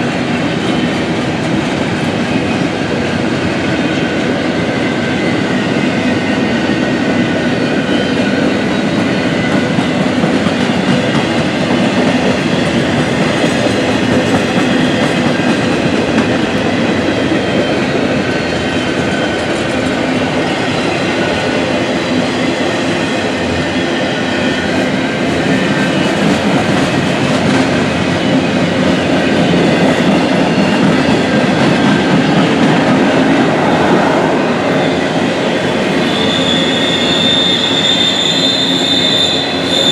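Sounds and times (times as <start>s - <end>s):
train wheels rumbling on rail: 0.0s - 39.9s
high-pitched wheel squeal: 34.7s - 39.9s.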